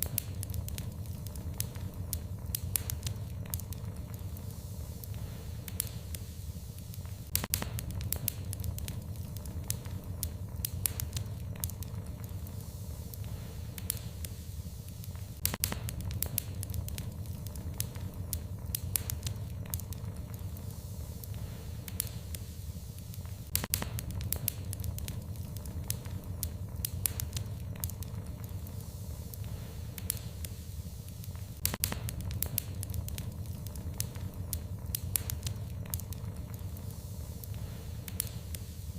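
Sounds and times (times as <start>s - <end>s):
fire crackling and popping: 0.0s - 38.9s
low rumble of flames: 0.0s - 38.9s.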